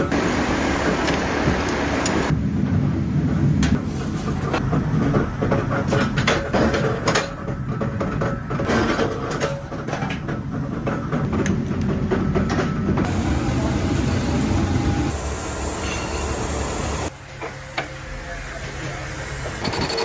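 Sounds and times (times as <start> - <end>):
machinery low rumble: 11.3 - 17.3.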